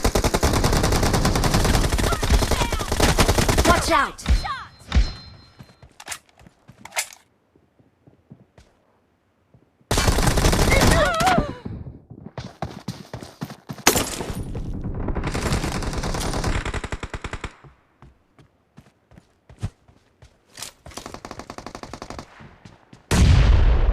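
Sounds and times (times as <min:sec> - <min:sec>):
video game automatic gunfire: 0:00.0 - 0:03.8, 0:14.5 - 0:17.6.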